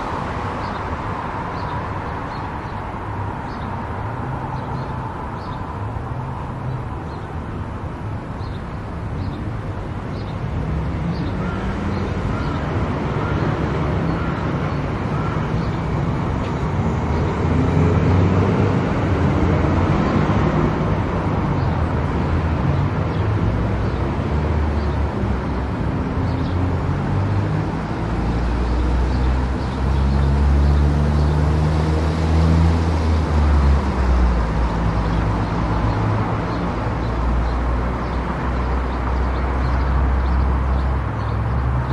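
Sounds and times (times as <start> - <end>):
car driving on highway: 0.0 - 41.9.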